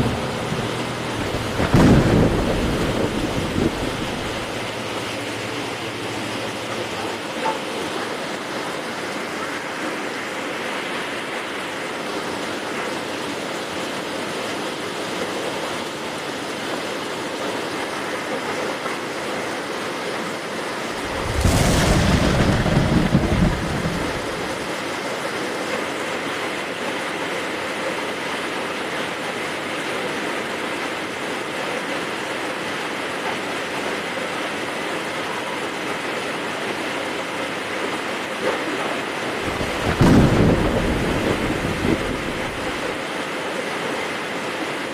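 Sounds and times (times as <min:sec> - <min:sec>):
thunderclap with deep rumble: 0:00.0 - 0:05.0, 0:21.0 - 0:24.8, 0:39.4 - 0:43.0
heavy rain falling: 0:00.0 - 0:44.9.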